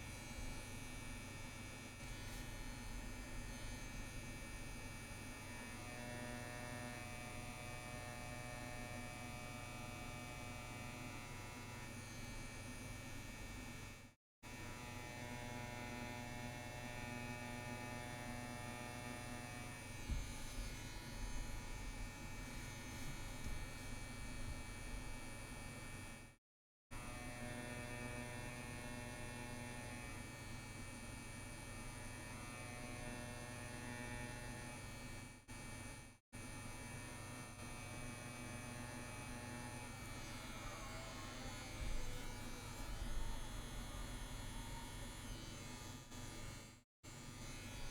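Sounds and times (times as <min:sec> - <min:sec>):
tattoo pen buzzing: 0:00.6 - 0:12.4, 0:14.6 - 0:25.2, 0:27.0 - 0:30.6.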